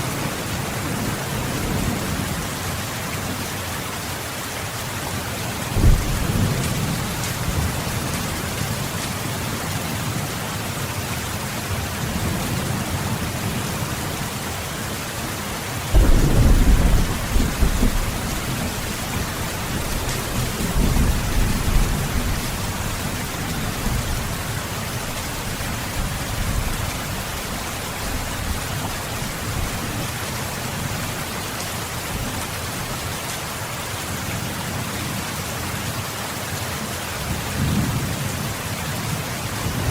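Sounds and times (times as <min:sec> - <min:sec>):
steady rain hiss: 0:00.0 - 0:39.9
deep rolls of thunder: 0:05.8 - 0:07.8, 0:16.0 - 0:22.5.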